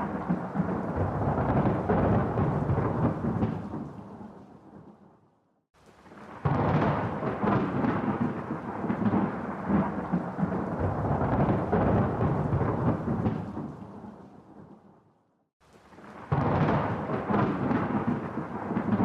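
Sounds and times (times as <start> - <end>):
thunder rumbling and crackling: 0.0 - 5.1, 6.0 - 14.8, 15.8 - 19.0.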